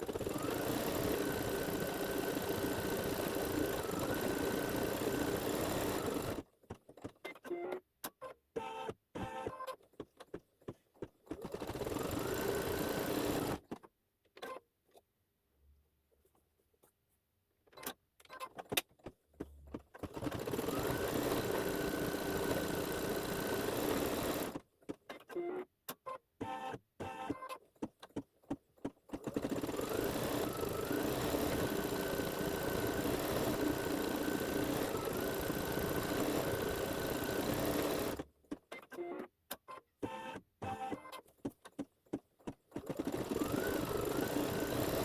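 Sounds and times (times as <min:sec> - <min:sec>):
embroidery machine stitching: 0:00.0 - 0:07.1, 0:11.2 - 0:13.7, 0:19.9 - 0:24.6, 0:29.1 - 0:38.3, 0:42.7 - 0:45.0.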